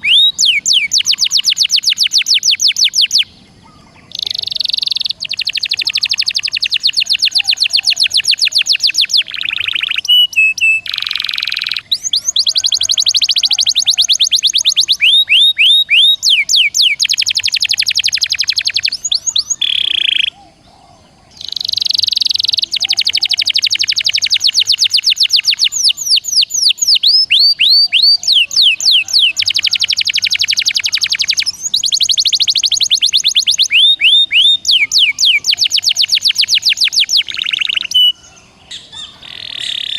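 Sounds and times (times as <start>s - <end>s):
songbird fast trills: 0.0s - 39.9s
downward whistled bird notes: 21.4s - 39.9s.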